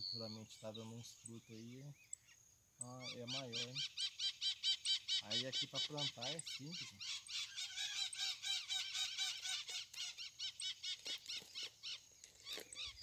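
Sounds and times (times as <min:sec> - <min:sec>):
birds quick repeated chirps: 0:00.0 - 0:13.0
lower repeated bird call: 0:00.0 - 0:13.0.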